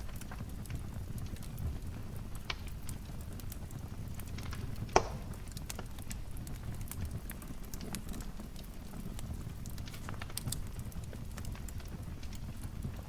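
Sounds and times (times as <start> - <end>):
wood fire crackling: 0.0 - 13.0
loud sharp pop: 4.9 - 5.3.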